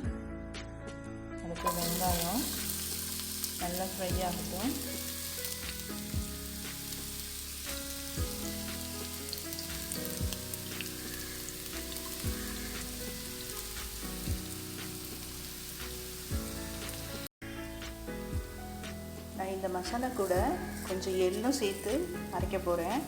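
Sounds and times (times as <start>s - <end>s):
background music with soft beat: 0.0s - 23.0s
onion sizzling in hot oil: 1.6s - 23.0s.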